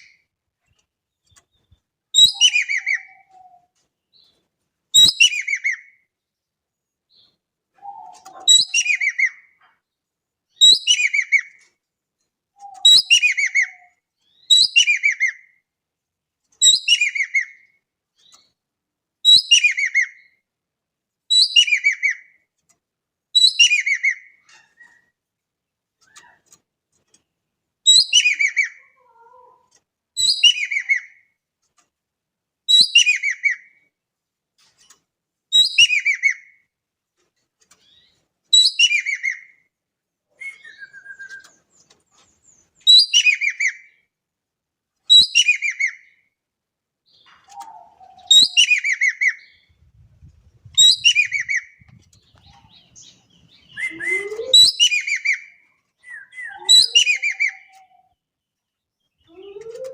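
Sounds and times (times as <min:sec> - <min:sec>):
songbird calling: 0:01.3 - 0:03.7, 0:47.2 - 0:50.0, 0:50.6 - 0:59.9.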